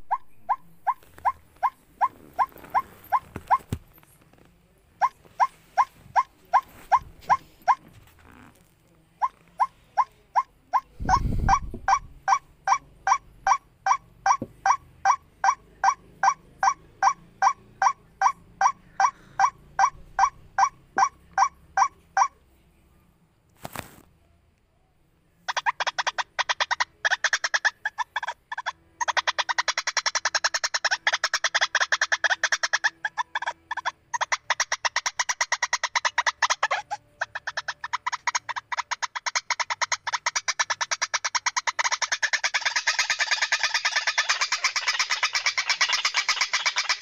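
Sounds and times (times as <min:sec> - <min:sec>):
waterhen calling: 0:25.5 - 0:47.0.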